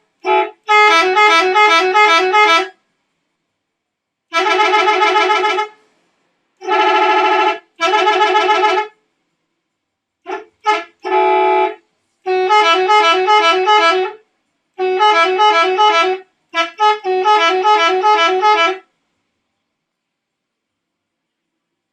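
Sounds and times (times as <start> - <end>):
multi-tone musical bus horn: 0.0 - 2.9, 4.3 - 5.9, 6.6 - 9.0, 10.2 - 18.9.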